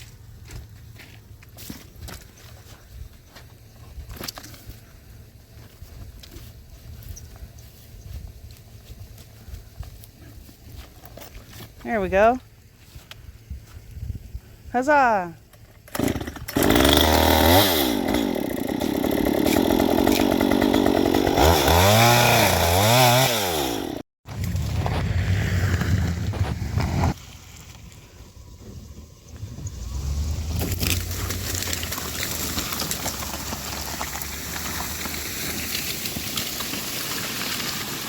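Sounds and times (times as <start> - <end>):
chainsaw revving: 15.9 - 24.0.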